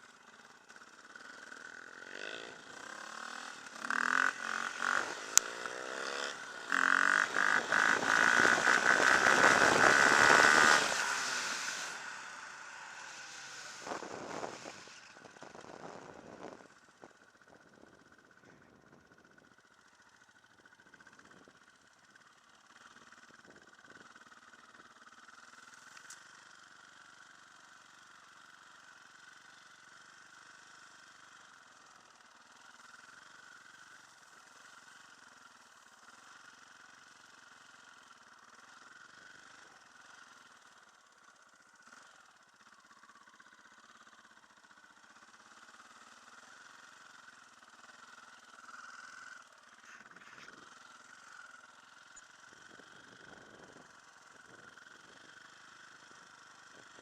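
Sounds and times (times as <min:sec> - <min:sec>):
faint dirt bike engine running: 0:00.0 - 0:57.0.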